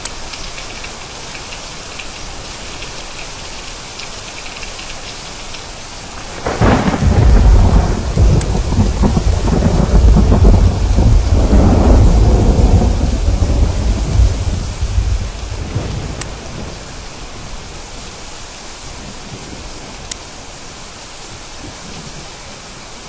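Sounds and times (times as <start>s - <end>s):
steady rain: 0.0s - 23.0s
thunderclap and rumble: 6.2s - 20.2s.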